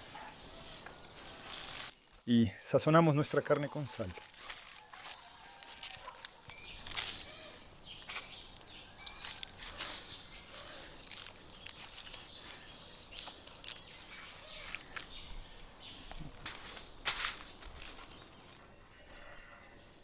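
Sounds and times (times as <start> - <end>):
birds chirping: 5.3 - 20.0.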